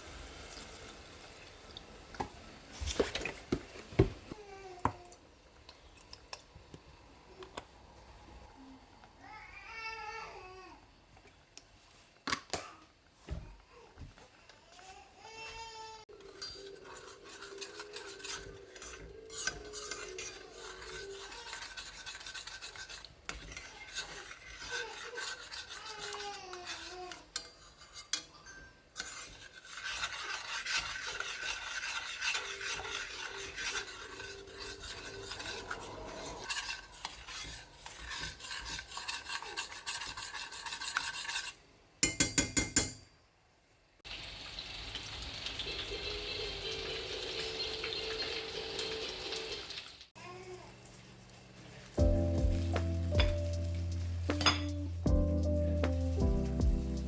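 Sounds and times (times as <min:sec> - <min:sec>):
rasping and scraping of food: 0:16.1 - 0:41.8, 0:51.6 - 0:57.0.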